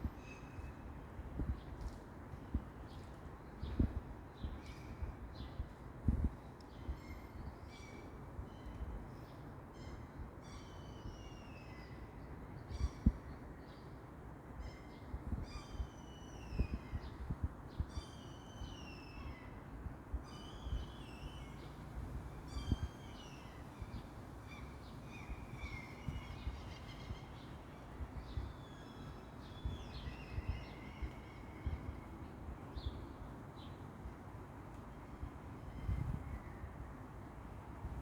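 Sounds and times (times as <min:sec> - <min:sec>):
songbirds singing: 0:06.4 - 0:14.0, 0:14.6 - 0:19.7, 0:20.3 - 0:33.9.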